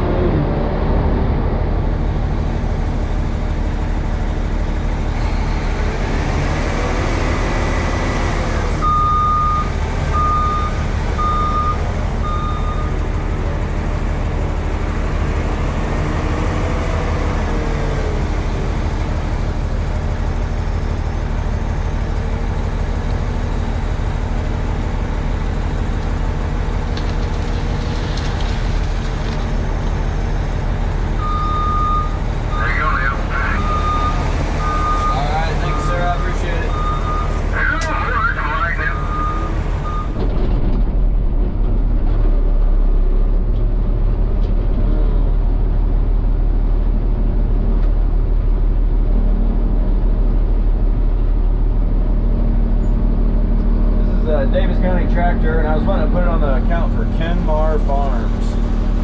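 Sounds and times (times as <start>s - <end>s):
diesel truck engine running: 0.0s - 59.0s
reversing alarm beeping: 8.8s - 13.0s, 31.2s - 37.8s, 38.7s - 40.2s.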